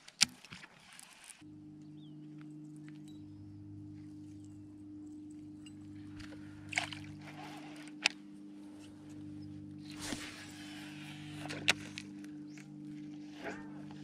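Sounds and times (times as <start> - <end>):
steady low hum: 1.4 - 14.0
water splashing against kayak: 6.2 - 8.2.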